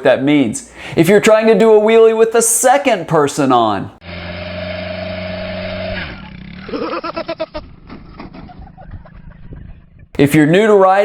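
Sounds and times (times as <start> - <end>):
motorcycle engine revving: 4.0 - 10.2
knocks or clatter: 7.6 - 8.8.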